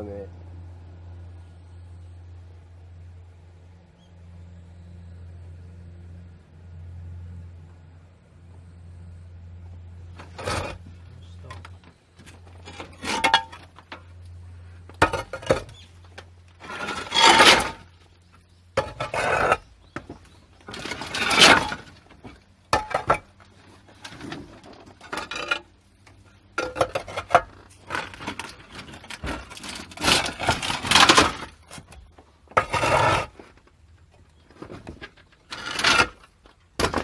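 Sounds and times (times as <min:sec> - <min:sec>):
corrugated metal sheet clattering: 0:20.6 - 0:22.0, 0:26.6 - 0:31.7.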